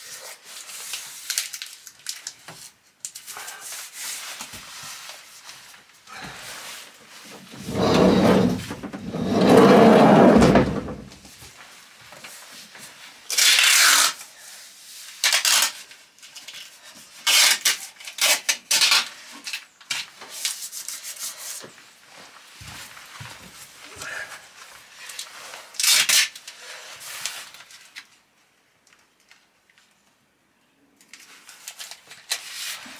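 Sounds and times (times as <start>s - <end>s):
hand rubbing tape down: 7.2s - 11.2s, 13.3s - 14.2s
tape tearing off roll: 7.5s - 11.2s, 13.3s - 14.2s, 15.2s - 16.5s, 17.2s - 19.6s, 25.8s - 26.4s.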